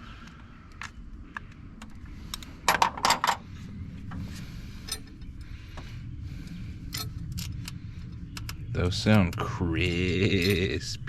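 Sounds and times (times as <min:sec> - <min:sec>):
metal parts and tools clinking: 0:02.6 - 0:03.4.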